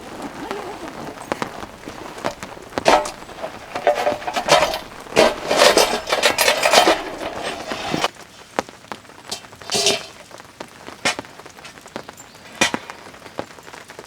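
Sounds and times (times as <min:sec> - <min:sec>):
objects scraping and clattering: 0:00.0 - 0:08.1, 0:09.3 - 0:10.2.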